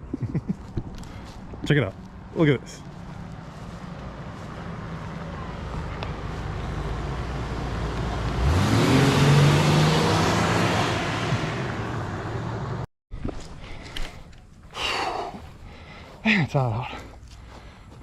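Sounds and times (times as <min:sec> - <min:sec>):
vehicle engine accelerating past: 0:03.3 - 0:12.9.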